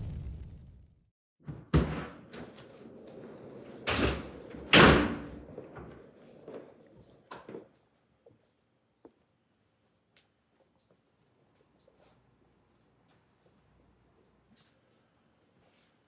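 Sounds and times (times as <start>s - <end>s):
door slamming shut: 1.4s - 2.6s, 3.8s - 5.9s.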